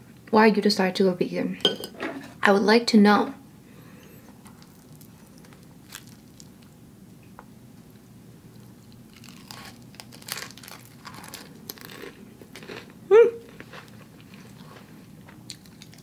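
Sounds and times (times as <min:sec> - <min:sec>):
person chewing crunchy food: 0:04.4 - 0:06.8, 0:08.5 - 0:16.0.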